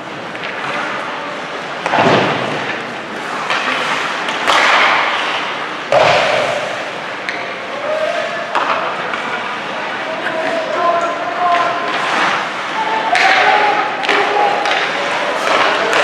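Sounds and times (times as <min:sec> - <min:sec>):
crowd and arena noise: 0:00.0 - 0:16.0
hockey puck knocks and bangs: 0:01.8 - 0:02.8, 0:04.3 - 0:07.5, 0:13.1 - 0:16.0.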